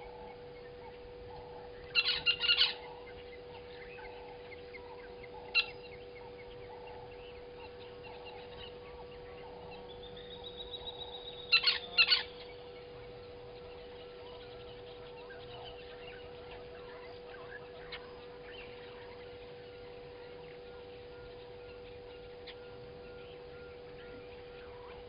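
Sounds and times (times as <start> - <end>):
bird calling rapidly: 0.0 - 20.0
low hum: 0.0 - 25.0.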